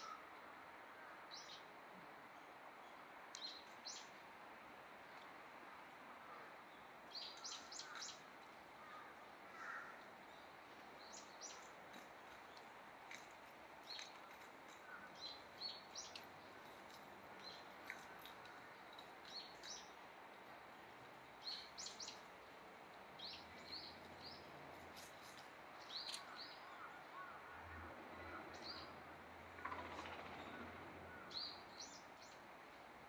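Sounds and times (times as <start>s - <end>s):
faint background noise: 0.0s - 33.0s
small birds chirping: 6.8s - 20.0s, 21.3s - 22.3s, 23.2s - 27.4s.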